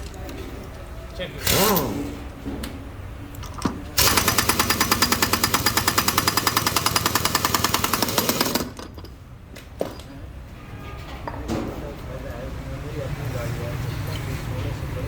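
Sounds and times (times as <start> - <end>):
pneumatic impact tool hammering: 1.4 - 2.2, 3.4 - 9.1.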